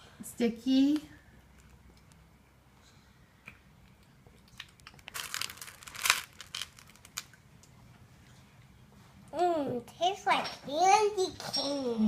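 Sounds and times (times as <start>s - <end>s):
plastic wrapper crinkling: 4.5s - 7.4s.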